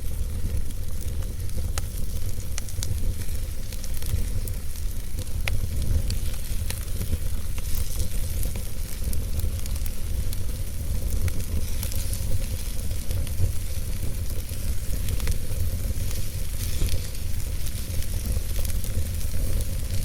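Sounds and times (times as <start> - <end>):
campfire crackling pops: 0.0 - 20.0
campfire hissing sizzle: 0.0 - 20.0.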